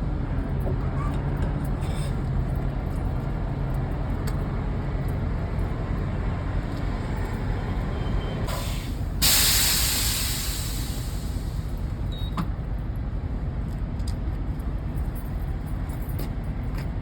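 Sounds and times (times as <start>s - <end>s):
diesel trucks idling: 3.4s - 12.7s
air brakes hissing: 6.9s - 12.0s.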